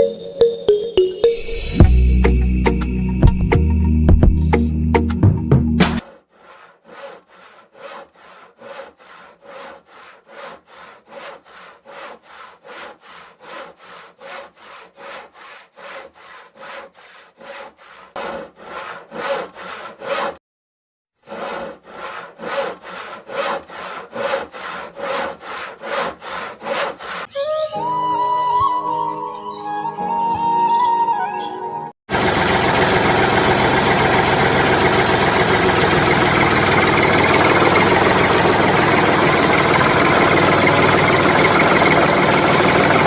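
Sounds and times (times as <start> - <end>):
hand saw cutting wood: 5.8 - 20.4, 21.2 - 27.3, 32.1 - 43.0.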